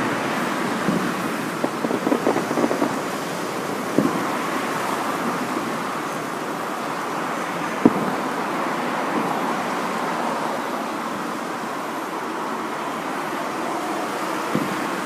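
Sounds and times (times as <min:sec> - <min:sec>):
steady rushing noise: 0:00.0 - 0:15.0
firework bangs: 0:00.6 - 0:06.0.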